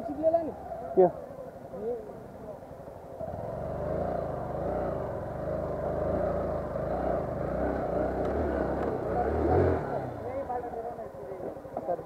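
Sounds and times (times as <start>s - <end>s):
motorcycle engine running: 3.1s - 12.0s.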